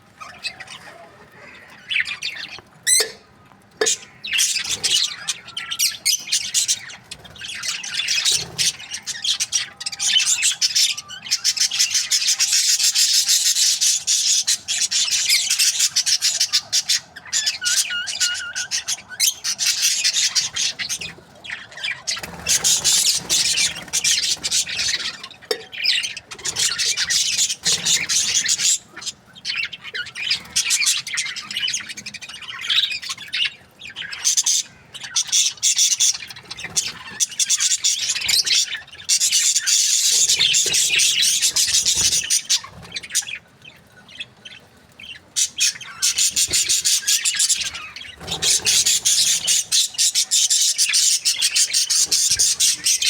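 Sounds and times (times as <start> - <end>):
budgerigar chirping and warbling: 0.2 - 21.2, 45.4 - 53.0.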